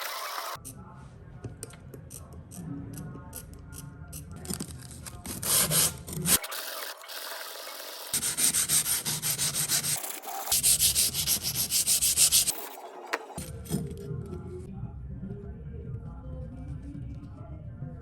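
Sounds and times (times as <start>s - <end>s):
scissor blade rubbing on abrasive: 5.2s - 6.4s, 8.1s - 12.8s.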